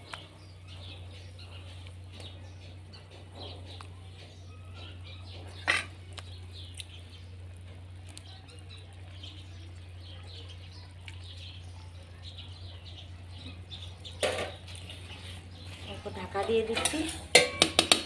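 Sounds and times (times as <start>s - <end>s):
steady low hum: 0.0s - 17.4s
small birds chirping: 0.0s - 18.0s.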